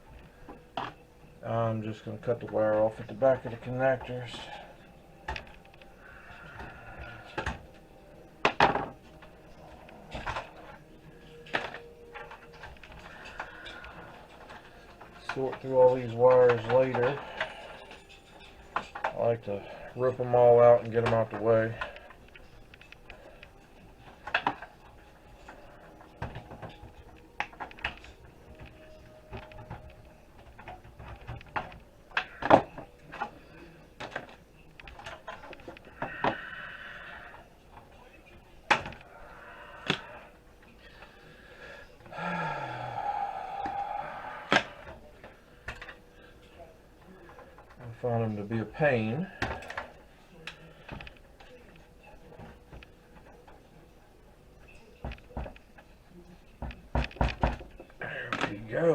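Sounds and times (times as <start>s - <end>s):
plastic connectors and metal chassis rattling: 10.1s - 36.4s.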